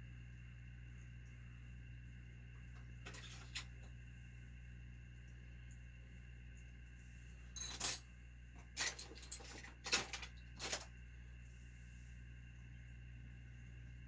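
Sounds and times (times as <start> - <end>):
metal tools clinking: 7.6 - 8.0, 8.8 - 10.9.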